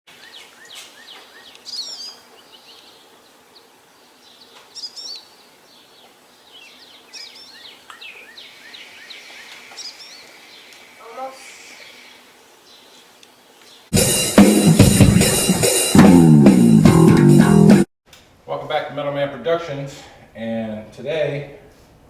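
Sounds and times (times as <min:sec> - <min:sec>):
songbirds chirping and singing: 0:00.1 - 0:13.9
steady background hiss: 0:00.1 - 0:13.9, 0:18.1 - 0:22.0.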